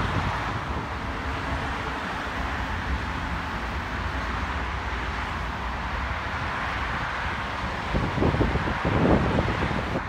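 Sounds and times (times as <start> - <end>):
wind buffeting microphone: 0.0 - 2.0, 6.4 - 10.0.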